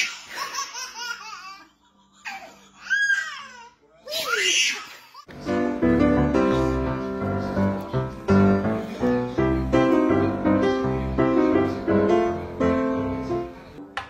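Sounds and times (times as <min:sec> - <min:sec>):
piano music: 0:05.3 - 0:14.0.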